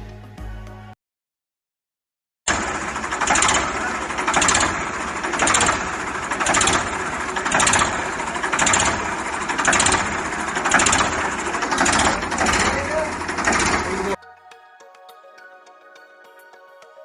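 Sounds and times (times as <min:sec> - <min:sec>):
saw cutting through wood: 0:02.5 - 0:14.2.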